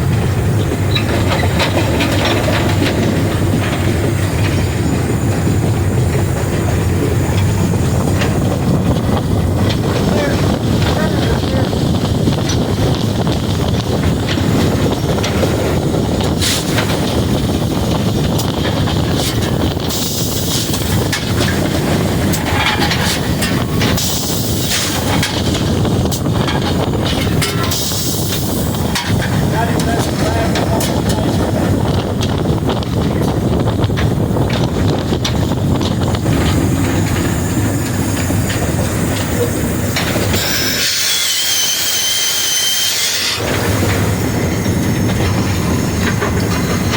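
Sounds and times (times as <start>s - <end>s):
clanks and rattles: 0.0s - 46.9s
steam locomotive running gear rumble: 0.0s - 46.9s
wind on microphone: 0.0s - 46.9s
steam hiss: 19.8s - 22.4s, 23.2s - 25.4s, 27.3s - 30.5s, 36.2s - 46.9s.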